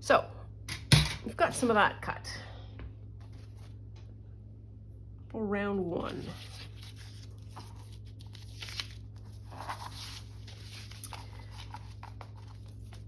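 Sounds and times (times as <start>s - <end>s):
steady low hum: 0.0s - 13.0s
paper rustling: 6.0s - 13.0s.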